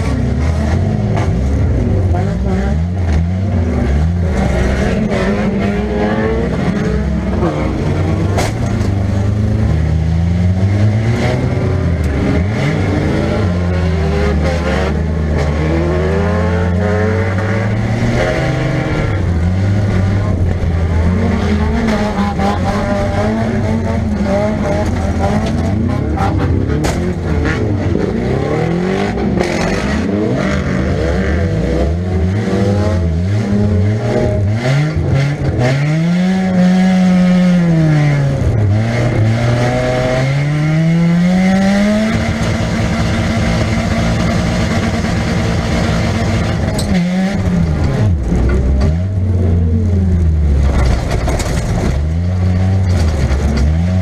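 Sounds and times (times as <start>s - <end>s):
car engine revving: 0.0s - 54.0s
knocks and clatter from car body: 50.6s - 52.1s.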